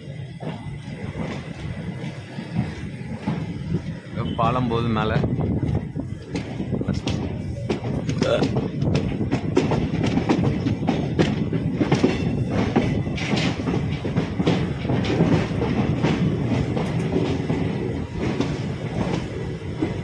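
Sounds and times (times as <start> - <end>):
train rumble: 0.0 - 20.0
wheels knocking over rail joints: 6.3 - 20.0.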